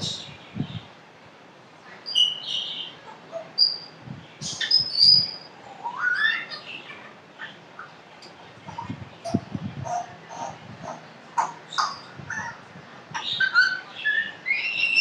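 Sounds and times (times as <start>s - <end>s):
parrot whistling and chirping: 4.6s - 6.6s, 13.3s - 15.0s.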